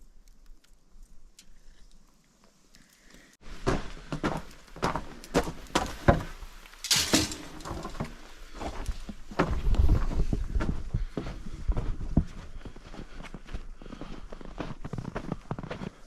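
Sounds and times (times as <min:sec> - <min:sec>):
sharp knocks and cracks: 0:06.0 - 0:08.1.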